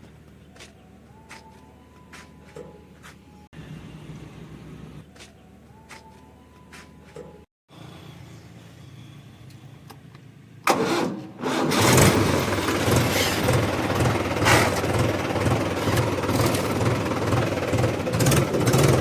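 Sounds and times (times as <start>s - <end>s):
diesel tractor engine starting: 10.6s - 19.0s.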